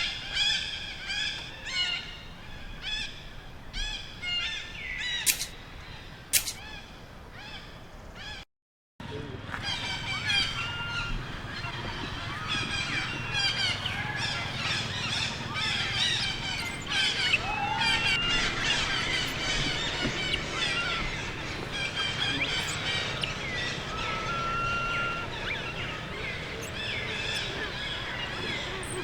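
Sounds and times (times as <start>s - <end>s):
young monkeys squealing: 9.6s - 29.0s.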